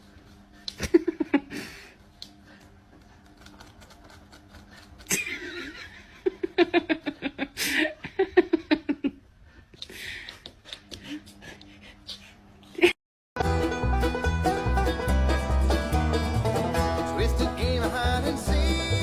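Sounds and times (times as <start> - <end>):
person laughing: 0.7 - 1.9, 5.1 - 9.2.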